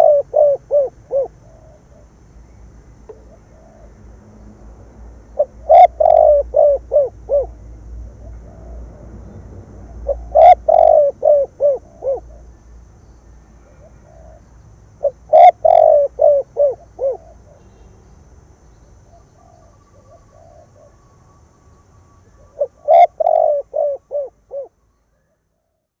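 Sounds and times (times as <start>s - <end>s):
dove cooing: 0.0s - 2.2s, 3.1s - 4.0s, 5.3s - 9.0s, 9.9s - 12.6s, 13.6s - 17.7s, 19.1s - 21.0s, 22.3s - 25.8s.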